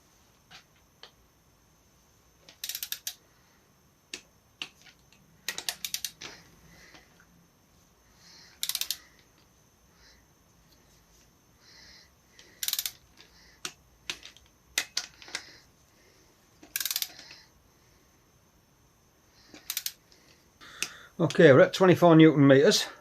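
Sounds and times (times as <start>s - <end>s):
torque wrench ratchet clicking: 2.5s - 3.2s, 5.5s - 6.3s, 8.6s - 9.0s, 12.6s - 13.1s, 16.7s - 17.3s, 19.6s - 20.0s.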